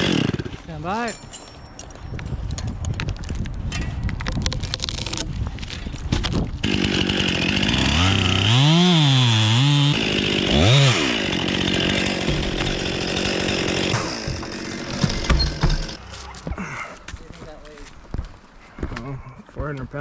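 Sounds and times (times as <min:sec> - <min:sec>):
chainsaw cutting through wood: 0:00.0 - 0:00.7, 0:06.6 - 0:16.0.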